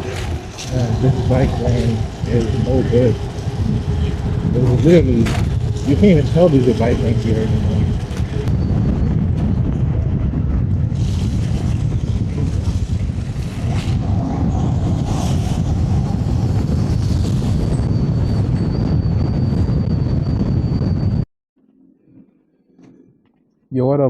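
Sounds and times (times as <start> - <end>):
faint high whine: 0.0 - 9.6
wind buffeting microphone: 0.0 - 21.3.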